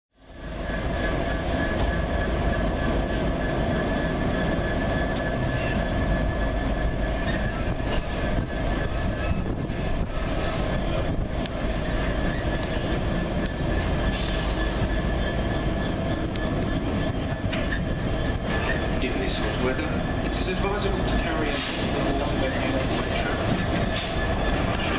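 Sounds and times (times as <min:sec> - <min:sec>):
constant train whine: 0:00.1 - 0:24.9
train running: 0:00.1 - 0:24.9.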